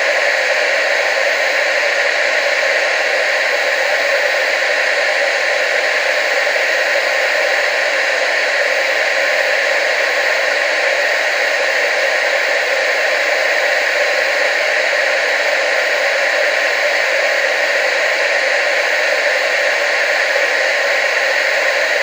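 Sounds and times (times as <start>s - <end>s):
television static hiss: 0.0s - 22.0s.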